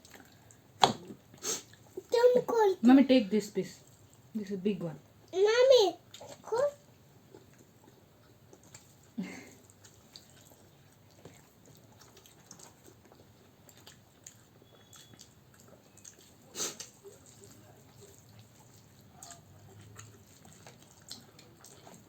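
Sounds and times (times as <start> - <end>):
chewing and wet clicks: 0.0 - 0.6, 6.1 - 22.0.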